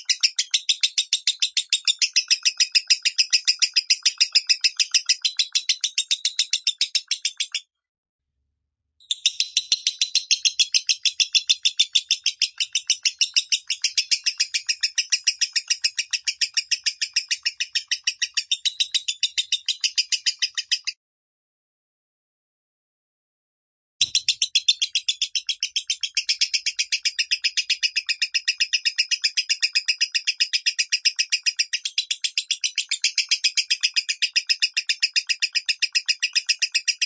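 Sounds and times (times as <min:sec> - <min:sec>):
lovebird rapid chirps: 0:00.0 - 0:07.6, 0:09.0 - 0:20.9, 0:24.0 - 0:37.0.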